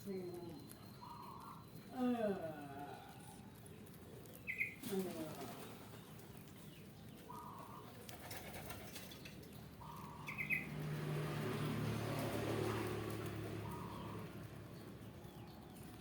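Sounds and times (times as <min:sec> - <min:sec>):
pigeons flapping wings: 0:04.9 - 0:06.0, 0:08.1 - 0:09.4.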